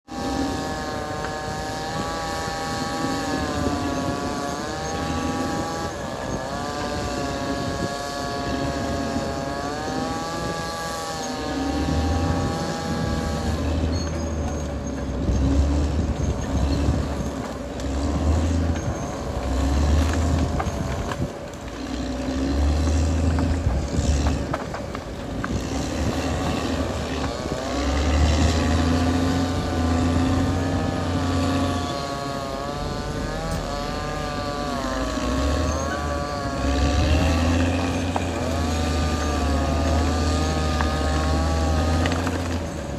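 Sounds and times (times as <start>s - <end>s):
bulldozer engine running hard: 0.0s - 42.9s
knocks and cracks: 23.2s - 27.5s.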